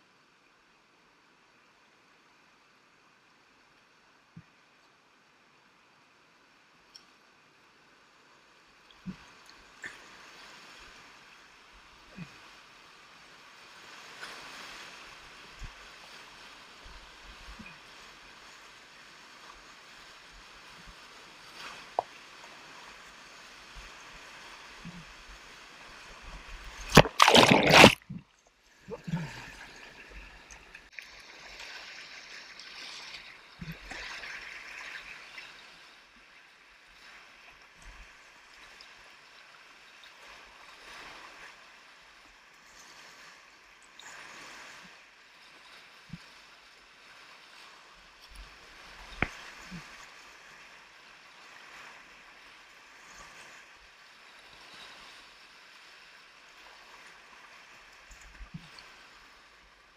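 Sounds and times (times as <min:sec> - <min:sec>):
river water rushing: 0:26.8 - 0:28.1.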